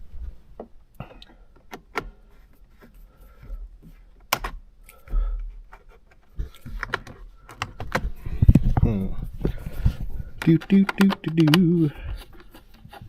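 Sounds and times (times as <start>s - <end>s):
tool clicks and taps: 10.4s - 12.6s.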